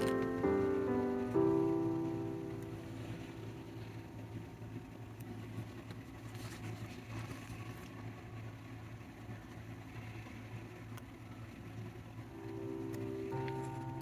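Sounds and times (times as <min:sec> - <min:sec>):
clicks: 0:00.0 - 0:00.8
low hum: 0:00.0 - 0:14.0
faint rustles: 0:02.6 - 0:08.6.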